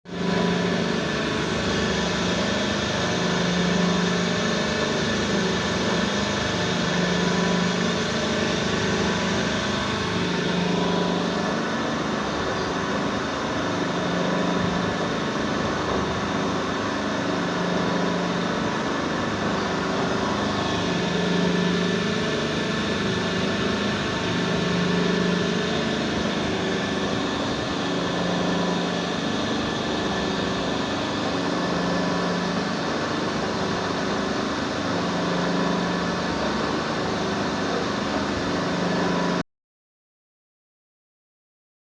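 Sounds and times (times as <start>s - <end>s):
boring machine whirring: 0.1s - 39.4s.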